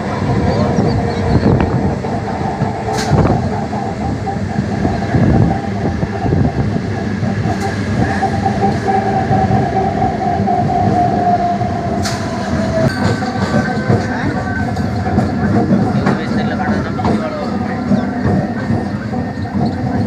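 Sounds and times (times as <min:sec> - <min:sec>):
electric train rumble: 0:00.0 - 0:20.0
train whine: 0:00.0 - 0:20.0.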